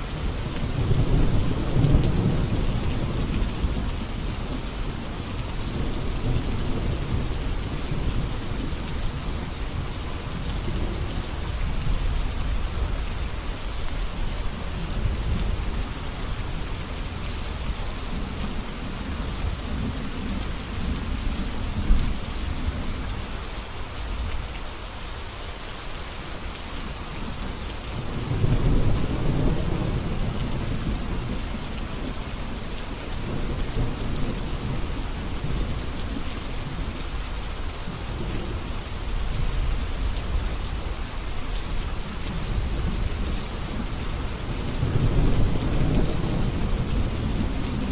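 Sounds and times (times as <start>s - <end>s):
steady rain: 0.0s - 47.9s
low rolling thunder: 0.2s - 11.2s, 27.9s - 36.8s, 41.7s - 47.9s.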